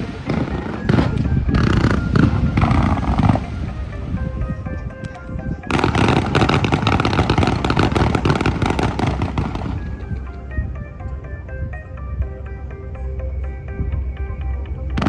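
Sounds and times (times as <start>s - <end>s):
fireworks crackling and popping: 0.0s - 3.5s, 5.7s - 10.3s
music with short repeated notes: 0.0s - 15.0s.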